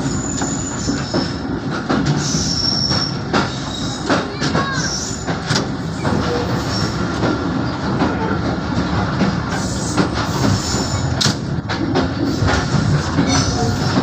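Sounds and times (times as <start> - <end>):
train wheels knocking over rail joints: 0.0 - 14.0
wheel squeal: 2.2 - 4.1.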